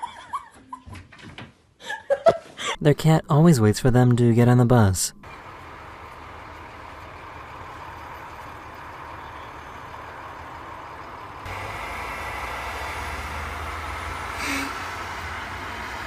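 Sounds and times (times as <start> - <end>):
bus engine running: 5.2 - 16.0.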